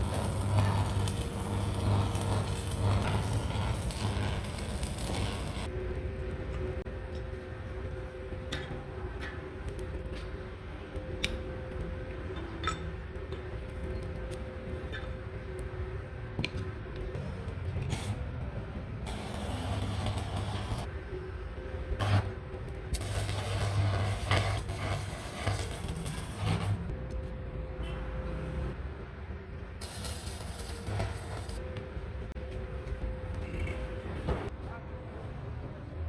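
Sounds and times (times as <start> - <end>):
hissing crackling noise: 0.0 - 5.7, 19.1 - 20.9, 23.0 - 26.9, 29.8 - 31.6
low buzz: 0.0 - 5.7
steady workshop hum: 0.0 - 36.0.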